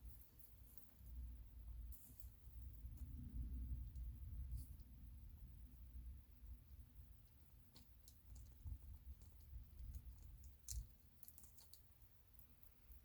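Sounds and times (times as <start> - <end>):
faint small clicks and taps: 7.7 - 13.0.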